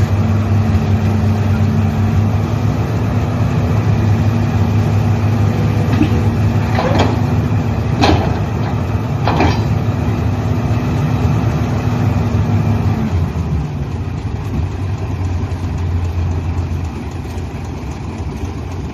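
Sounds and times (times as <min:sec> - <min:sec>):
heavy diesel engine running: 0:00.0 - 0:18.9
sharp metallic clanks: 0:08.0 - 0:09.8.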